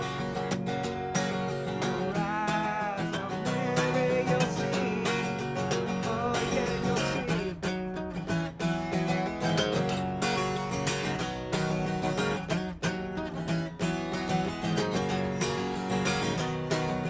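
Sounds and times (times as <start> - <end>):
man singing: 0.0 - 8.4
acoustic guitar strumming: 0.0 - 17.0.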